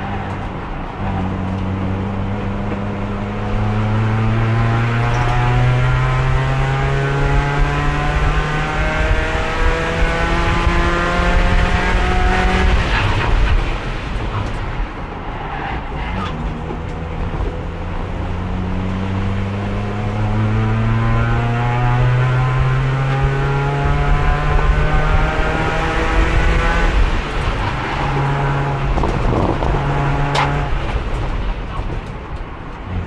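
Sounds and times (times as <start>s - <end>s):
race car engine revving: 0.0s - 14.6s, 16.0s - 32.0s.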